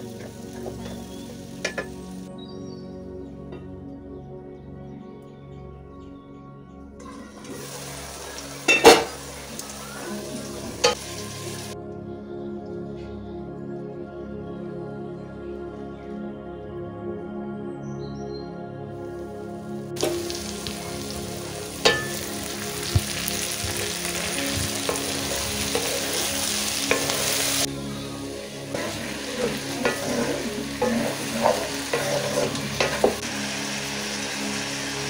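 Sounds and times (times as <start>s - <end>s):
vegetables sizzling in hot oil: 0.0s - 2.3s, 7.0s - 11.8s, 20.0s - 35.0s.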